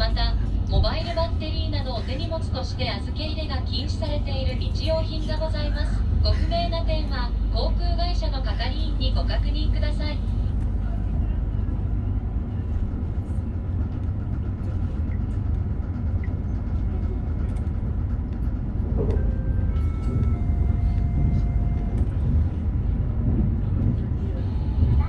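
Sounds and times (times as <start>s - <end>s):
train interior rumble: 0.0s - 25.0s.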